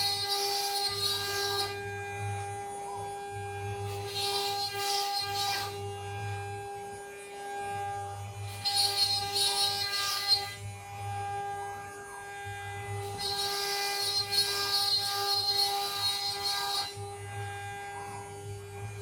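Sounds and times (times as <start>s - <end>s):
harsh hissy cutting noise: 0.0s - 1.8s, 3.8s - 5.9s, 8.1s - 11.0s, 11.6s - 19.0s
router spindle whining: 0.0s - 19.0s.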